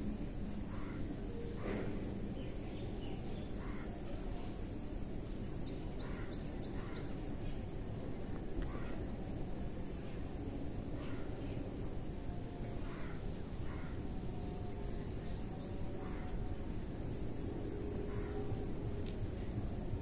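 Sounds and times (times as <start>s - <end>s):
steady low background noise: 0.0s - 20.0s
faint high bird chirps: 12.0s - 16.4s.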